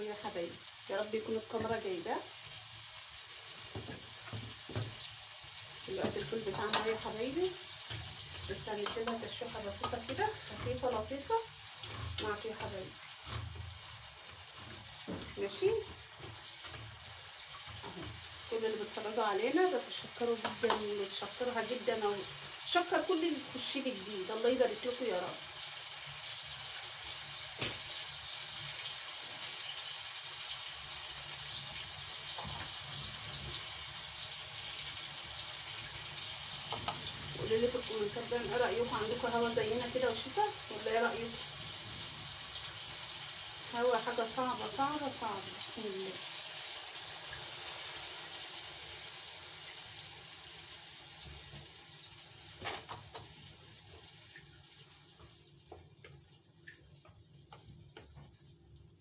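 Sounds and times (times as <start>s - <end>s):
food sizzling in a frying pan: 0.0s - 59.0s.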